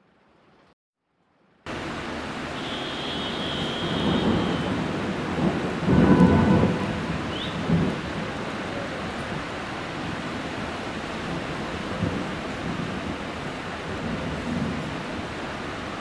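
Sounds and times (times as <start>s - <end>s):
heavy rain pouring: 0.1s - 16.0s
thunder rumbling: 3.5s - 15.4s.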